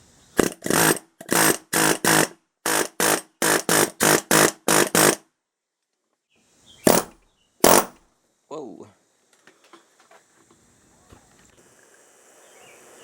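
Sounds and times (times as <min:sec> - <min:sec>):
pneumatic air hammer bursts: 0:00.4 - 0:05.2, 0:06.8 - 0:08.0.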